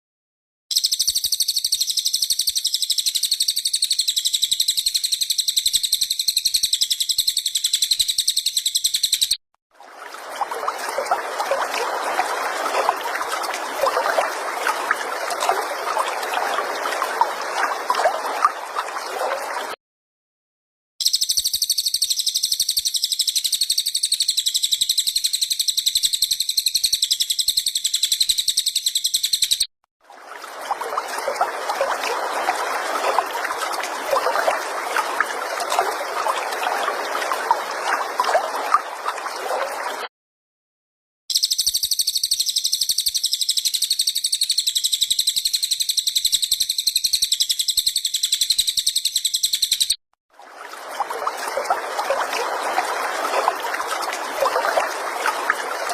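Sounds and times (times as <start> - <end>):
songbird chirping: 0.7 - 9.4, 41.3 - 50.0
trickling water: 0.7 - 19.8, 21.0 - 40.1, 41.3 - 55.9.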